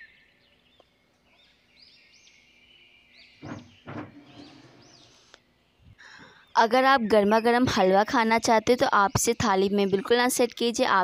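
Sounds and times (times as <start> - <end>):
small birds chirping: 0.0 - 11.0
spatula scraping steel plate: 3.4 - 5.2.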